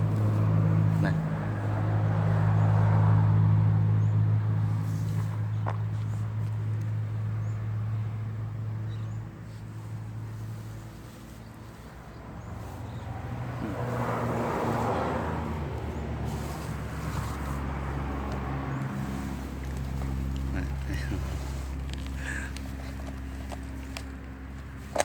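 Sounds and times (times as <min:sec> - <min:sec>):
motor engine humming: 0:00.0 - 0:25.0.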